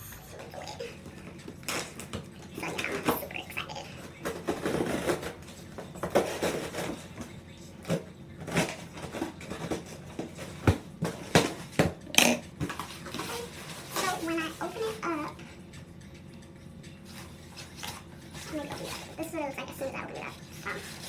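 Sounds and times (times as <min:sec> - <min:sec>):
scissors cutting a box: 0:03.9 - 0:14.3
cardboard rustling and scraping: 0:04.1 - 0:12.0, 0:12.6 - 0:15.0, 0:17.1 - 0:19.2, 0:20.4 - 0:21.0.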